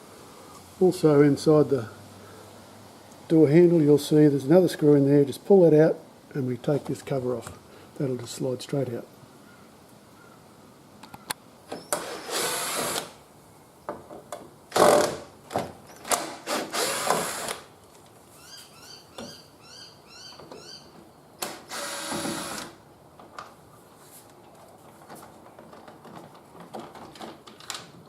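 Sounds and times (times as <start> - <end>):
cordless drill running: 12.0 - 13.1, 16.4 - 17.7, 21.5 - 22.8
handling clicks and knocks: 24.4 - 28.0.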